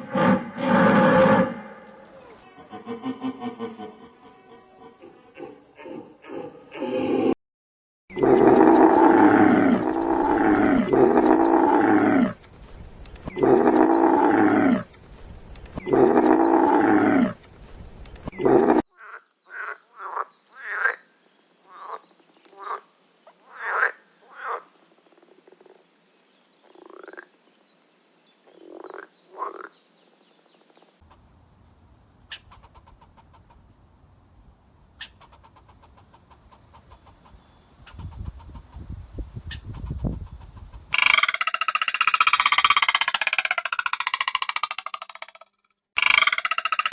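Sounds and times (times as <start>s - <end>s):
animal calls: 0.0s - 3.0s, 40.9s - 46.9s.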